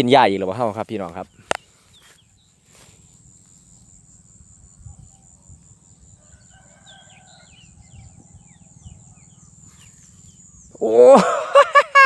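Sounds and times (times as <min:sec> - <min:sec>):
small birds chirping: 0:00.0 - 0:11.5
faint rooster crowing: 0:06.1 - 0:08.6.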